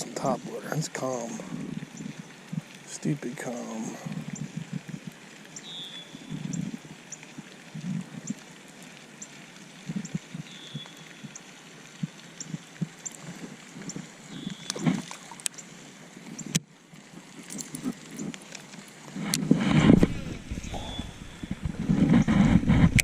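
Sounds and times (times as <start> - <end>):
faint high ticking: 1.2 - 15.7
short high chirps: 20.6 - 21.6.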